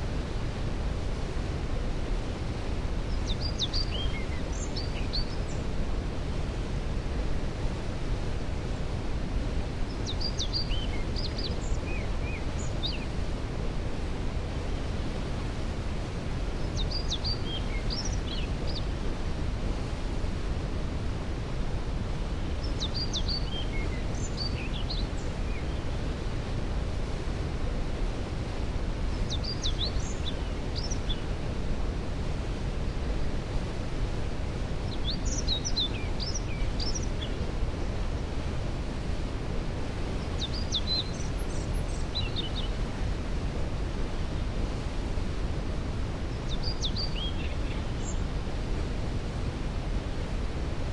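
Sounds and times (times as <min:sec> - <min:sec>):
songbird singing: 0:03.1 - 0:05.6, 0:09.9 - 0:13.1, 0:16.6 - 0:18.8, 0:22.6 - 0:26.0, 0:29.1 - 0:31.3, 0:34.9 - 0:37.5, 0:40.1 - 0:42.8, 0:46.3 - 0:48.3.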